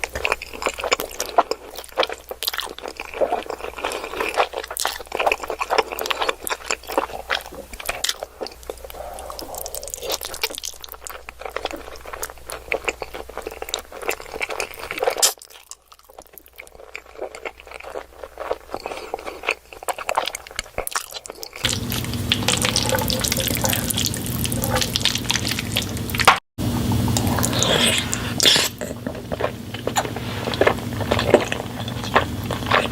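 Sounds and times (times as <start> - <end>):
wet chewing and mouth smacks: 0.0 - 26.4, 27.2 - 32.9
steady hum: 21.6 - 32.9.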